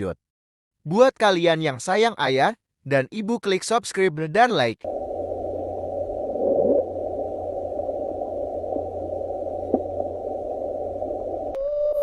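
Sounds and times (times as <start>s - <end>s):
low hum: 4.8s - 11.6s
muffled underwater rushing: 4.8s - 11.6s.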